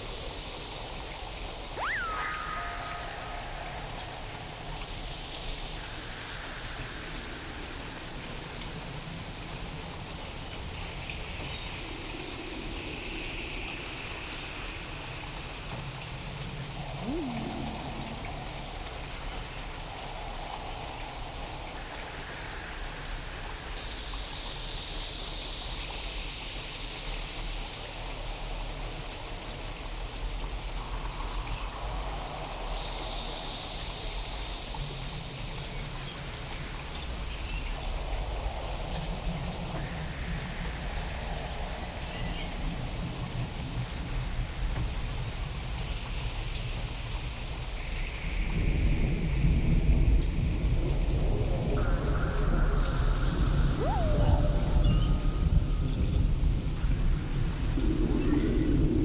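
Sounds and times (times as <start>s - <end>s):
rain hissing: 1.6s - 10.1s, 15.8s - 23.8s, 48.1s - 59.0s
downward swooping tone: 1.8s - 5.2s, 16.7s - 19.9s, 51.8s - 57.0s
filtered washes shifting pitch: 1.8s - 6.0s, 16.5s - 21.4s, 51.8s - 57.8s.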